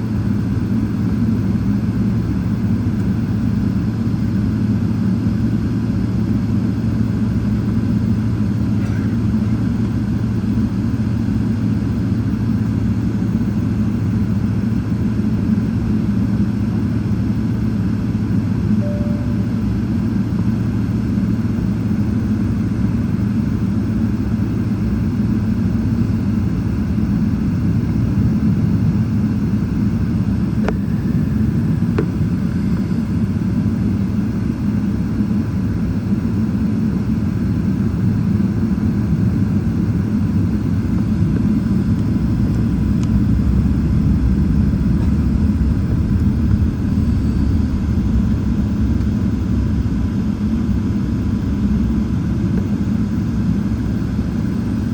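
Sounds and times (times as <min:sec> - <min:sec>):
jet engine rumble: 0:00.0 - 0:54.9
faint steady tone: 0:18.7 - 0:20.2.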